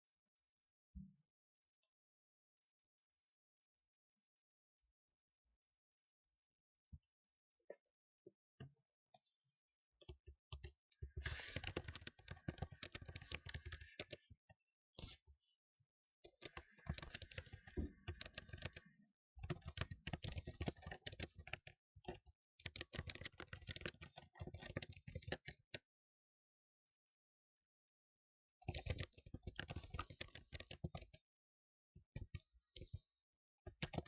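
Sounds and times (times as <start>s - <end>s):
computer keyboard typing: 10.6s - 14.2s, 16.3s - 21.7s, 22.6s - 25.7s, 28.7s - 31.2s, 33.7s - 34.0s.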